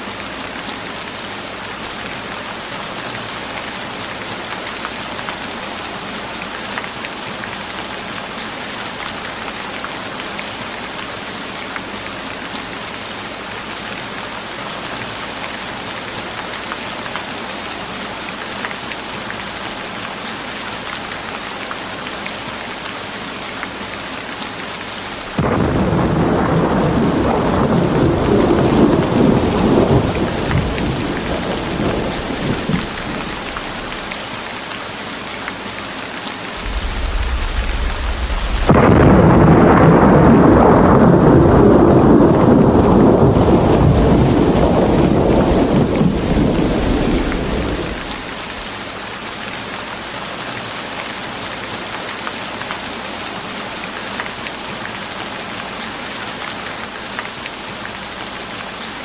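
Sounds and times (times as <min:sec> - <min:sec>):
rain falling: 0:00.0 - 0:59.0
thunder rumbling: 0:25.3 - 0:34.2, 0:36.6 - 0:48.8.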